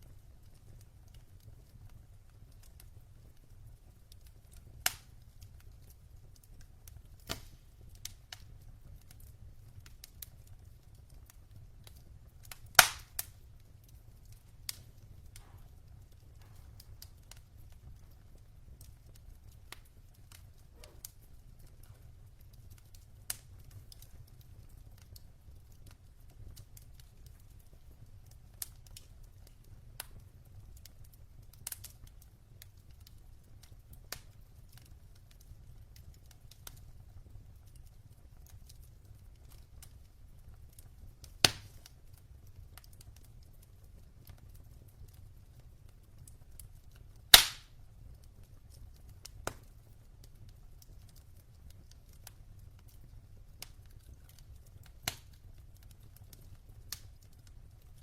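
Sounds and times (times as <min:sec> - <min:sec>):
loud pops from fire: 0:00.0 - 0:25.2, 0:40.7 - 0:42.0, 0:47.2 - 0:47.8, 0:48.4 - 0:49.7, 0:53.6 - 0:57.5
low rumble of fire: 0:00.0 - 0:58.0
wood fire crackling: 0:00.0 - 0:58.0.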